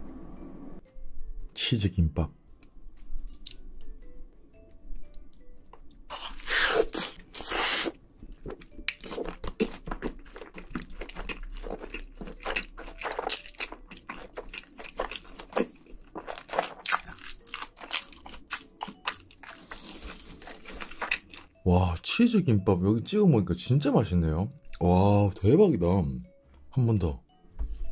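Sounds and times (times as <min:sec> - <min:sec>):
wet chewing with soft crunches: 0:08.2 - 0:21.6.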